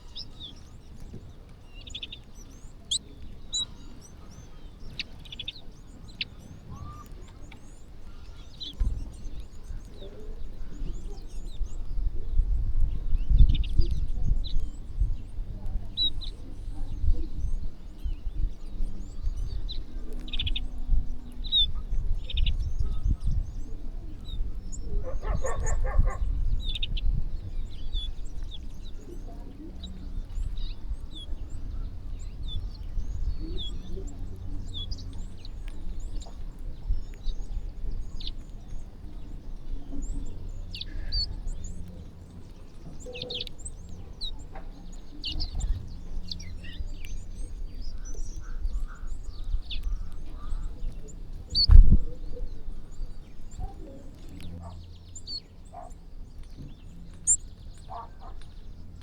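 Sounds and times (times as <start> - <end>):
small birds chirping: 0.0 - 59.0
harsh low bird call: 24.5 - 27.2.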